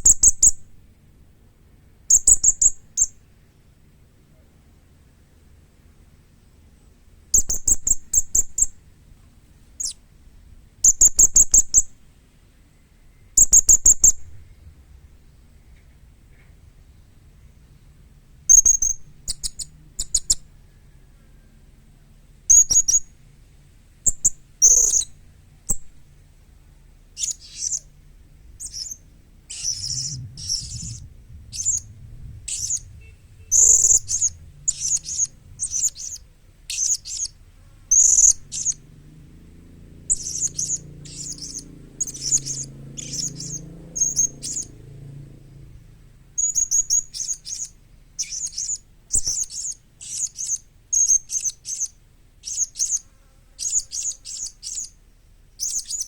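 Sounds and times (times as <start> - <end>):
parrot chirping: 27.2 - 27.9, 28.6 - 31.9, 32.5 - 38.8, 40.1 - 44.7, 46.4 - 53.0, 53.6 - 55.0, 55.6 - 56.0.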